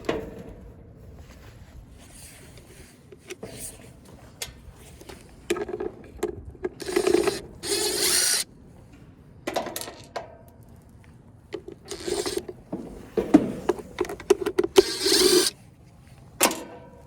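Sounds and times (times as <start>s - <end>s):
hand tools clicking and rattling: 5.5s - 8.4s, 11.6s - 12.6s, 13.6s - 15.6s.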